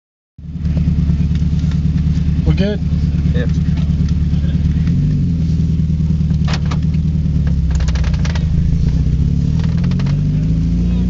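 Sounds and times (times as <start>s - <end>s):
car engine drone from inside: 0.4s - 11.0s
short clicks or rattles: 7.5s - 8.5s.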